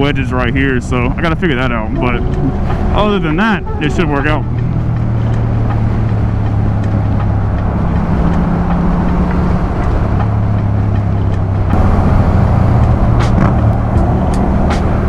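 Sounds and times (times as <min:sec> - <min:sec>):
exhaust pops: 0:04.5 - 0:15.0
motorcycle engine running: 0:08.7 - 0:15.0.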